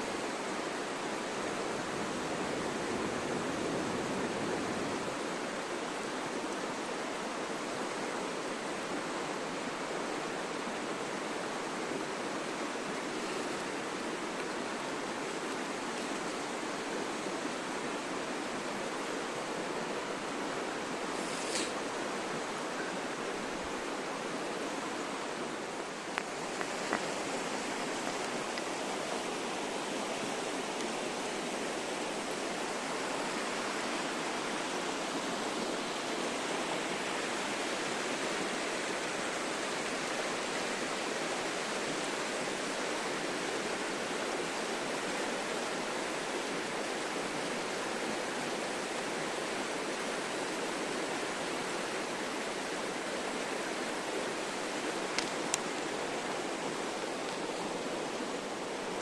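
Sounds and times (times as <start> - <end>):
running water: 0.0 - 59.0
faint clicks: 55.1 - 55.8.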